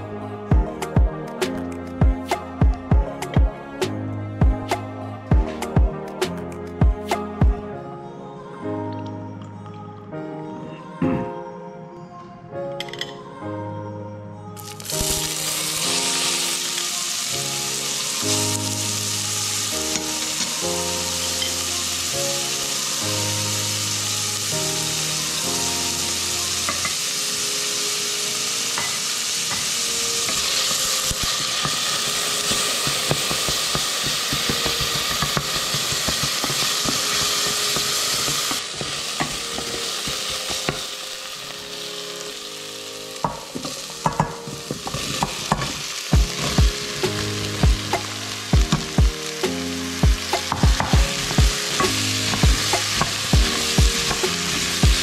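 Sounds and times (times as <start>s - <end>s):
onion sizzling in hot oil: 14.6s - 55.0s.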